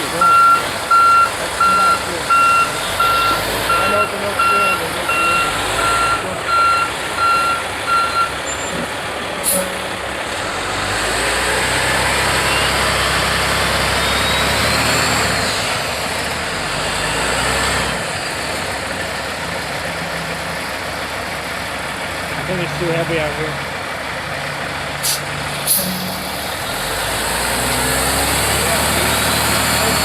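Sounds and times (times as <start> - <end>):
truck reversing alarm beeping: 0.0 - 10.0, 12.2 - 15.6, 27.2 - 30.0
diesel engine revving with whine: 0.0 - 21.4, 22.2 - 30.0
air hiss: 25.0 - 26.0.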